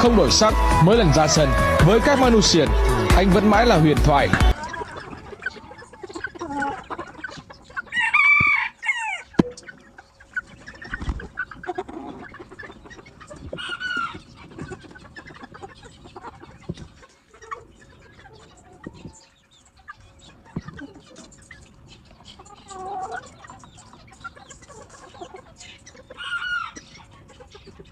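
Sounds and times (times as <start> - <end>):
low clucking: 0.0 - 27.9
rooster crowing: 7.9 - 9.3.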